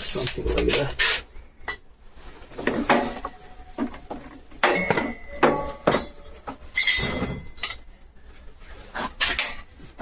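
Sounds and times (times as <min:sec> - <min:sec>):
metal clanks: 0:02.6 - 0:08.0.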